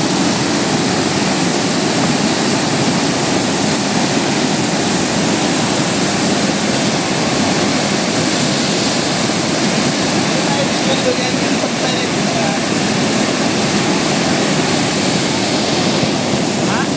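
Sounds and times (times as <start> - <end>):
floodwater rushing in stream: 0.0 - 16.9.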